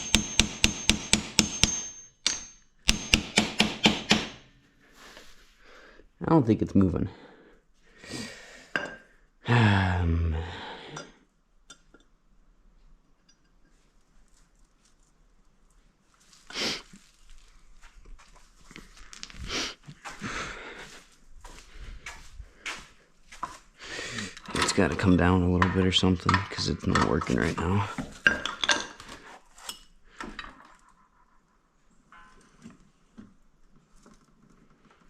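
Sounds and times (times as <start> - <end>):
metal tools clinking and knocking: 0.0 - 3.2, 24.1 - 31.0.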